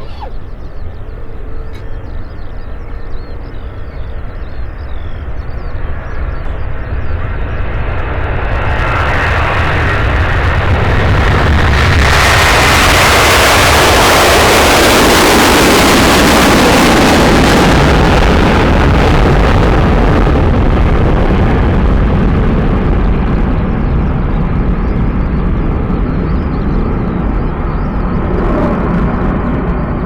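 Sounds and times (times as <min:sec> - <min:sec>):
jet engines at take-off: 0:00.0 - 0:30.0.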